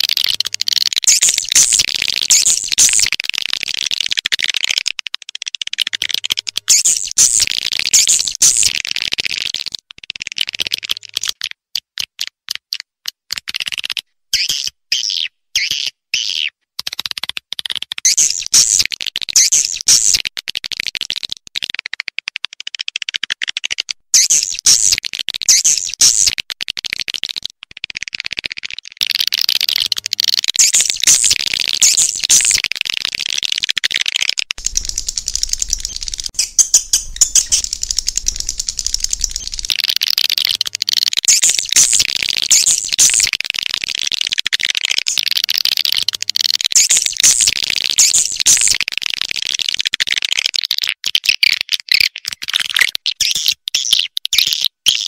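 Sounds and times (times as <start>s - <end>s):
swiftlets twittering: 1.1s - 3.1s, 30.6s - 32.6s, 34.6s - 39.8s, 40.4s - 43.4s.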